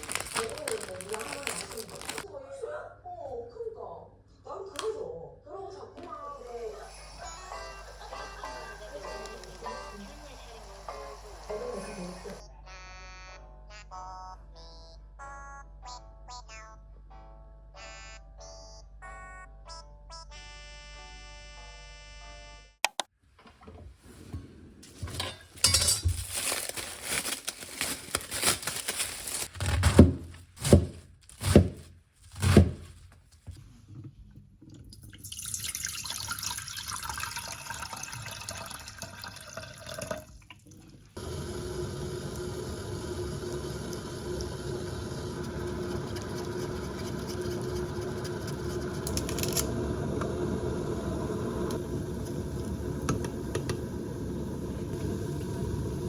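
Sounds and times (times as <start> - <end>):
water running from a tap: 6.5 - 12.4, 34.8 - 56.0.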